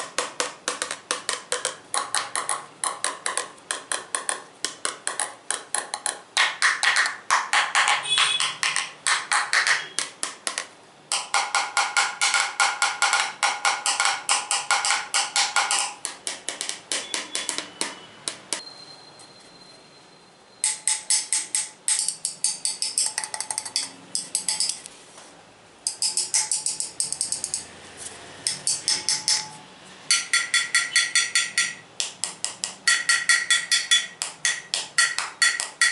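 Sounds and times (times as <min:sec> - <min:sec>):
fast tapping on hard objects: 0:00.0 - 0:18.6, 0:20.6 - 0:24.9, 0:25.9 - 0:27.7, 0:28.5 - 0:35.9
faint ringing tone: 0:18.0 - 0:20.6.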